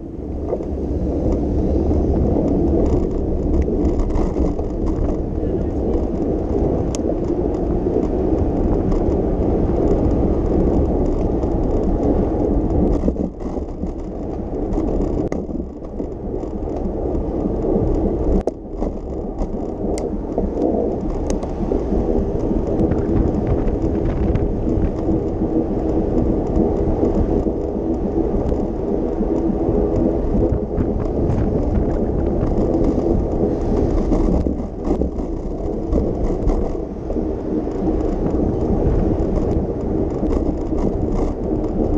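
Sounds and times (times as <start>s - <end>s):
street traffic noise: 0.0s - 41.9s
wind rumbling over microphone: 0.0s - 41.9s.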